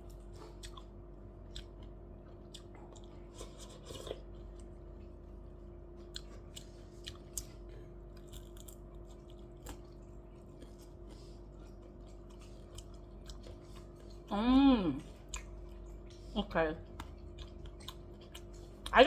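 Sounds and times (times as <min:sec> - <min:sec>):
person chewing: 0:00.0 - 0:05.4, 0:06.0 - 0:14.3, 0:15.0 - 0:19.0
faint hum: 0:00.0 - 0:19.0.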